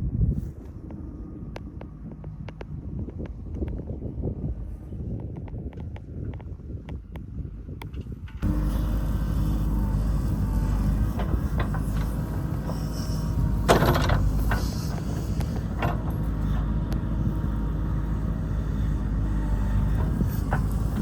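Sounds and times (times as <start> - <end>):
knocks and clanks of roadwork: 5.2 - 21.0
diesel machinery engine running: 8.4 - 21.0.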